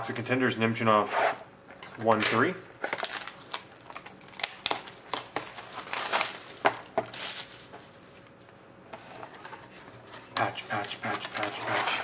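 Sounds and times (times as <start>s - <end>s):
plastic wrapping crinkling and tearing: 2.0s - 7.7s, 10.7s - 12.0s.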